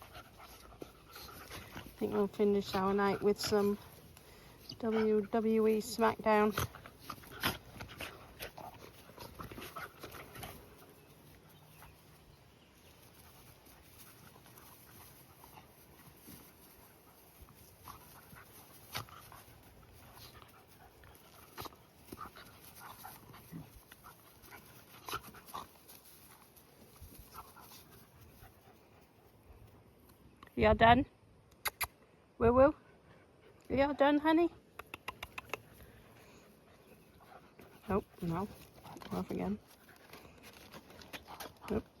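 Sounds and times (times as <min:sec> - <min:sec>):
dog paws tapping and clicking: 0:34.7 - 0:35.9, 0:37.5 - 0:42.0.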